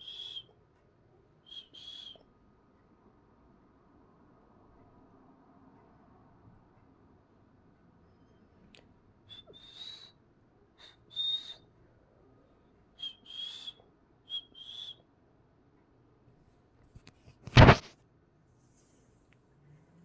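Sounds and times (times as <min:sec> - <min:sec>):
loud short burst of noise: 0:17.5 - 0:17.9.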